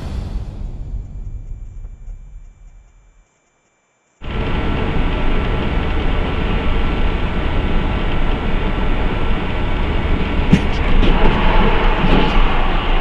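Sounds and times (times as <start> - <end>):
vehicle rumble: 4.2 - 13.0.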